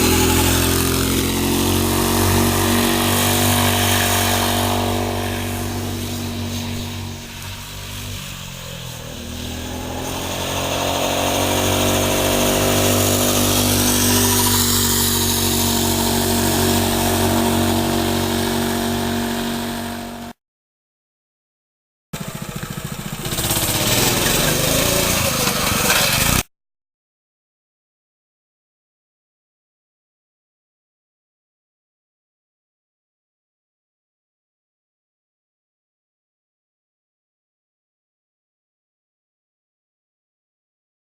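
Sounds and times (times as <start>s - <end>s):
minibike engine revving: 0.0s - 20.4s, 22.2s - 26.5s.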